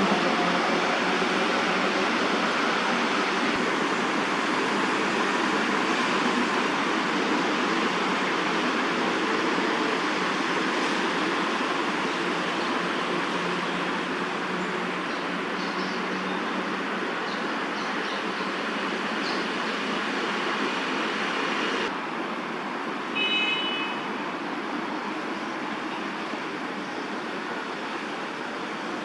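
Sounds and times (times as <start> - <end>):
steady background noise: 0.0 - 29.0.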